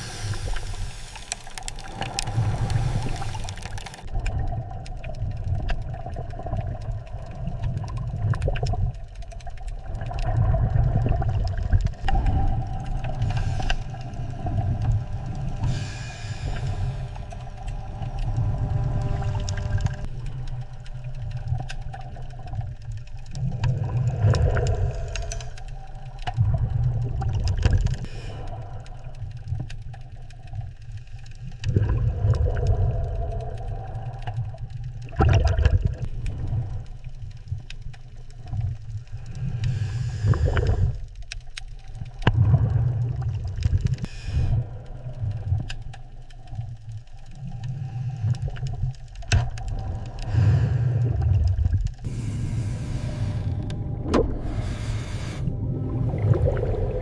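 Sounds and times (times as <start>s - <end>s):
low rumbling surging noise: 49.8s - 57.0s.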